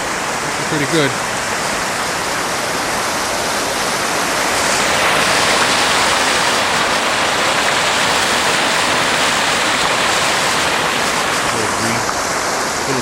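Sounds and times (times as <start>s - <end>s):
loud rushing noise: 1.8s - 13.0s.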